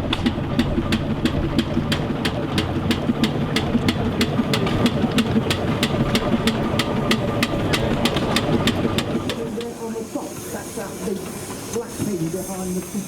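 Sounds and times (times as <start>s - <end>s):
rapid even clicking: 0.0s - 12.8s
steam engine rumbling: 0.0s - 13.0s.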